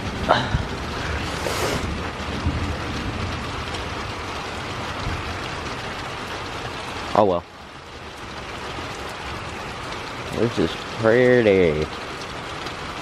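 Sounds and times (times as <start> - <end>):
low thunder rumble: 0.0 - 6.8
rain spattering on surfaces: 0.0 - 13.0.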